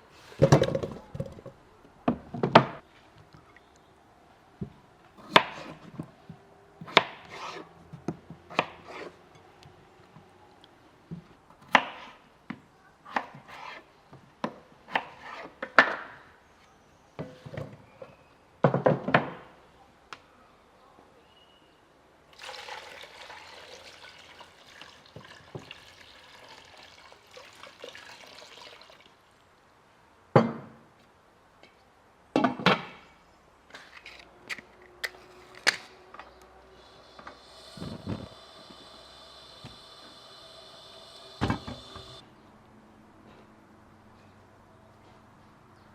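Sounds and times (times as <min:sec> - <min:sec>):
liquid being poured: 0:22.3 - 0:29.2.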